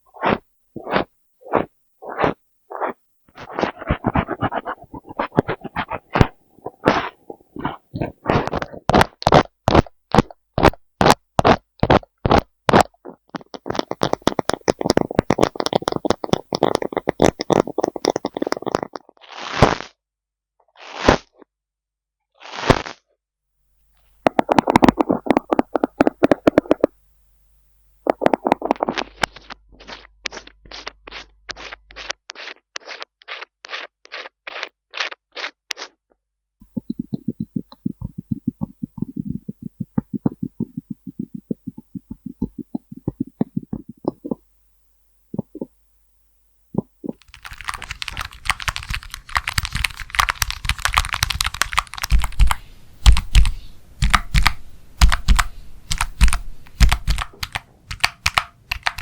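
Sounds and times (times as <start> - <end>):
rough scratching: 0.0 - 19.9, 28.1 - 35.9.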